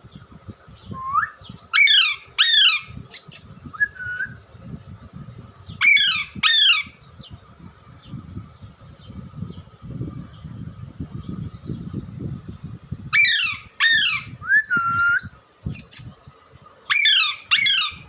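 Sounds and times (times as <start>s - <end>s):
parrot squawking: 1.8s - 3.4s, 5.8s - 6.9s, 13.2s - 14.4s, 16.9s - 18.0s.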